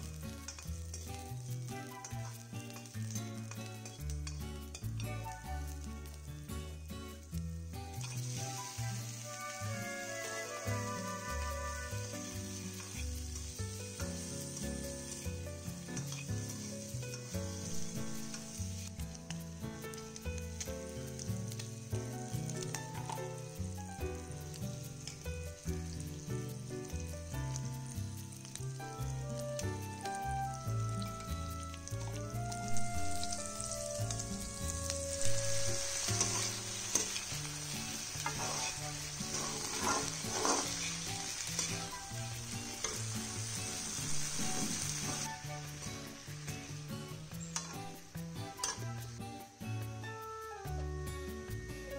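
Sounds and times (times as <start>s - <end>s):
food sizzling in a wok: 0.0s - 51.9s
soft background music: 0.0s - 51.9s
metal spatula scraping a pan: 7.9s - 13.5s, 15.9s - 18.9s, 35.2s - 45.3s, 48.6s - 48.9s.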